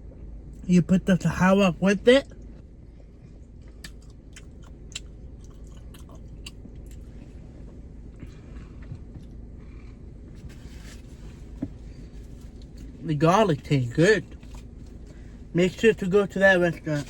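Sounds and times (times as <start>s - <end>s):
person chewing food: 3.2s - 13.0s, 14.2s - 15.5s.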